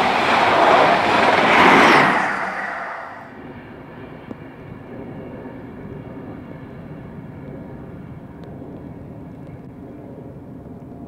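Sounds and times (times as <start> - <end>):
train rumbling by: 0.0 - 4.6
engine hum: 0.0 - 11.0.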